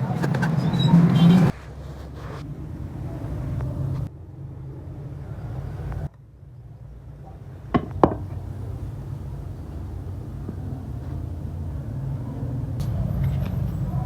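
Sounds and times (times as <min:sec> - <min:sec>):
sharp knocks: 0:07.8 - 0:08.6
low steady hum: 0:07.8 - 0:12.8.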